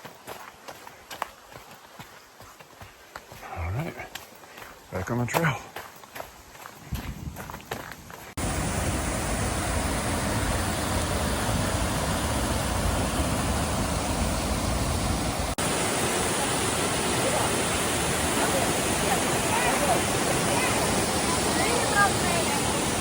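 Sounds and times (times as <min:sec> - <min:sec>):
waterfall rushing: 0:08.4 - 0:23.0.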